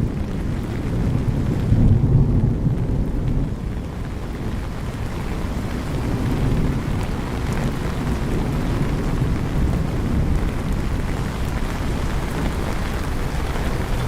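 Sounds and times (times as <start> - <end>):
steady rain: 0.0 - 14.0
thunder rumble: 0.0 - 14.0
traffic: 3.3 - 14.0.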